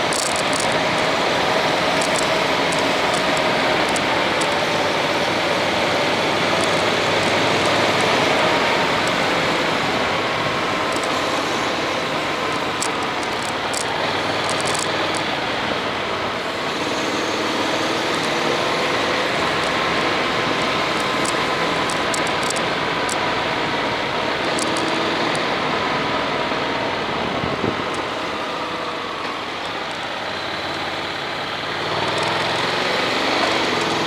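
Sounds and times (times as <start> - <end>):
light ticks: 0.0 - 10.1, 10.8 - 15.4, 20.8 - 23.3, 24.4 - 25.5
motorcycle engine running: 0.0 - 28.3, 30.3 - 34.0
wind and road noise: 0.0 - 34.0.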